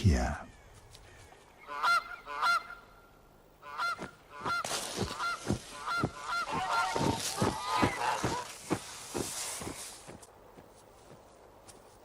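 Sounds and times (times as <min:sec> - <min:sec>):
waterfowl honking: 0:01.6 - 0:03.0, 0:03.6 - 0:08.6.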